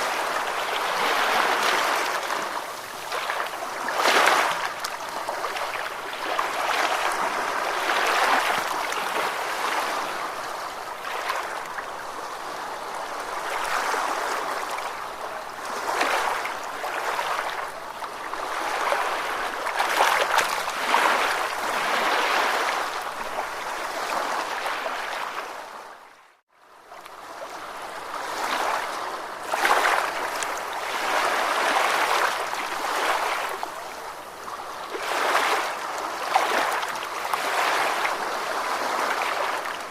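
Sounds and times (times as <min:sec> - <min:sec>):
ocean waves washing in: 0:00.0 - 0:26.1.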